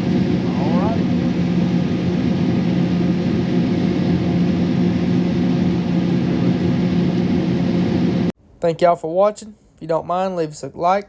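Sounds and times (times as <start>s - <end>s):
diesel engine droning: 0.0s - 8.3s.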